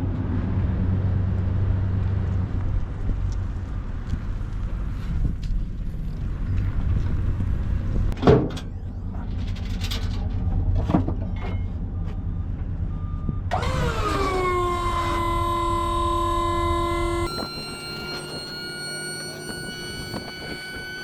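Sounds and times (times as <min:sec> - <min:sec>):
vehicle engine rumbling: 0:00.0 - 0:21.0
music with long held tones: 0:15.8 - 0:21.0.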